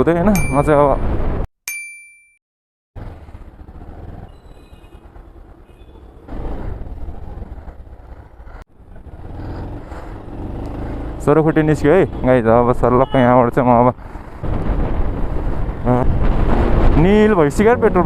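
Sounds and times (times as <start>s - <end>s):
road and wind noise: 0.0s - 1.5s, 3.0s - 18.0s
ringing tone: 0.4s - 0.8s, 1.7s - 2.4s
motorcycle engine running: 7.2s - 11.4s.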